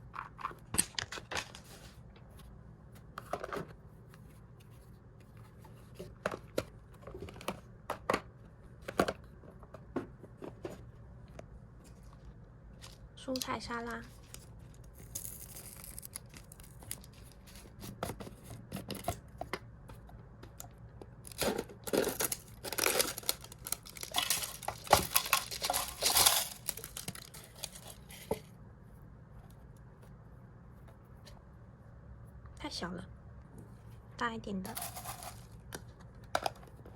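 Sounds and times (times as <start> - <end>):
plastic packet crinkling: 21.2 - 28.3.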